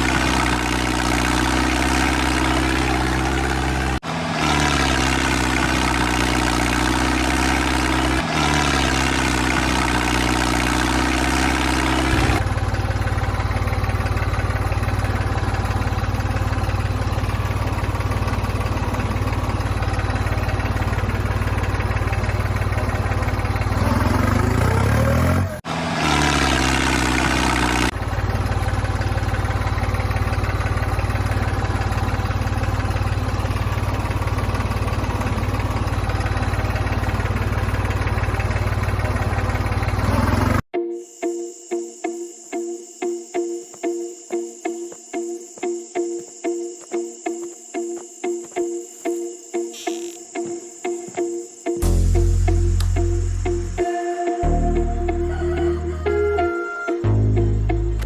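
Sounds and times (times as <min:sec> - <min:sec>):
small motor humming: 0:00.0 - 0:40.7
rising whine: 0:49.6 - 0:58.0.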